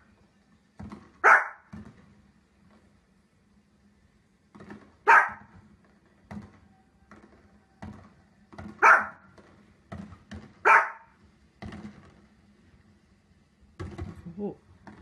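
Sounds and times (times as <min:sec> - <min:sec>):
small dog barking: 0:01.2 - 0:01.7, 0:05.0 - 0:05.5, 0:08.8 - 0:09.2, 0:10.6 - 0:11.2.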